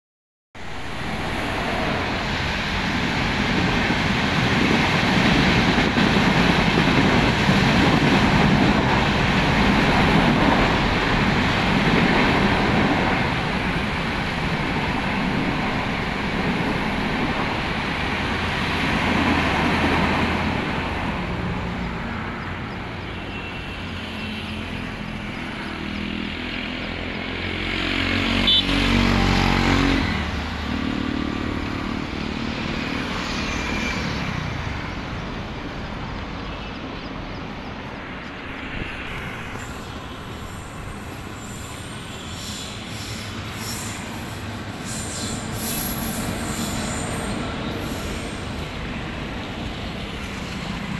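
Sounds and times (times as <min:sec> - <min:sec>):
train wheels on rails: 0:00.6 - 0:22.1, 0:37.2 - 0:50.9.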